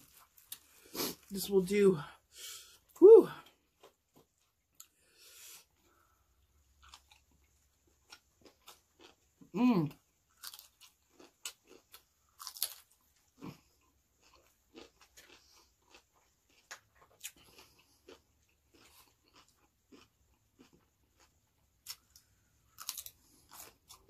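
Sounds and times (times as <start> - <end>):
person crunching raw cabbage: 5.7 - 24.0.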